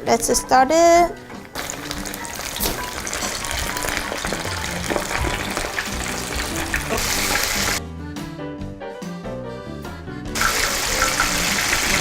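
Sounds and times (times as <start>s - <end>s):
background music: 0.0s - 12.0s
chicken sizzling in hot oil: 1.3s - 7.8s, 10.4s - 12.0s.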